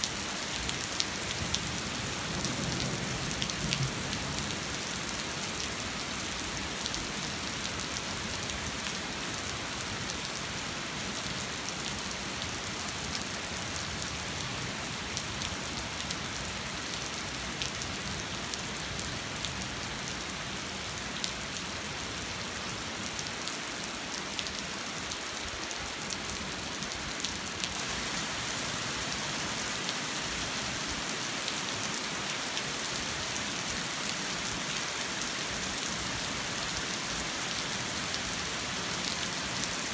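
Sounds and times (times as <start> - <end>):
rain pattering: 0.0 - 10.6.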